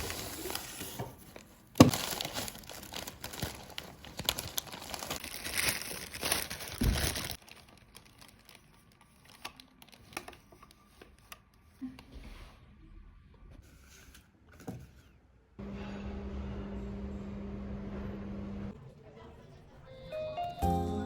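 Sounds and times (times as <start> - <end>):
crinkling and rustling: 0.0 - 11.8.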